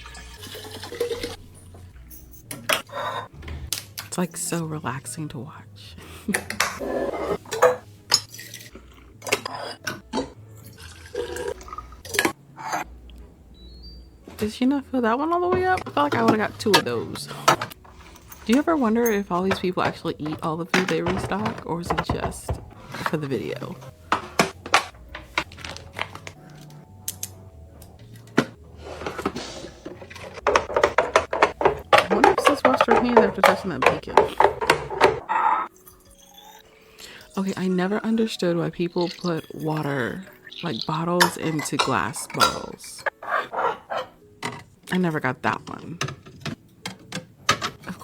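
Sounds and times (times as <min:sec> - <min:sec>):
liquid pouring into container: 0:00.0 - 0:01.4, 0:10.6 - 0:12.3, 0:38.9 - 0:40.9
containers clinking and tapping: 0:00.0 - 0:02.9, 0:15.3 - 0:35.2, 0:38.8 - 0:43.2
packaging crinkling: 0:24.0 - 0:26.8.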